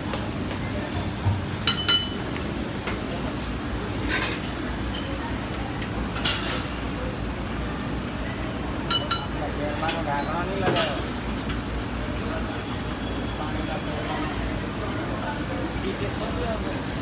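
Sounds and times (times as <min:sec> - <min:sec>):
street stall background murmur: 0:00.0 - 0:17.0
metal spatula clinking on griddle: 0:01.7 - 0:02.2, 0:08.9 - 0:09.4
voices: 0:04.1 - 0:17.0.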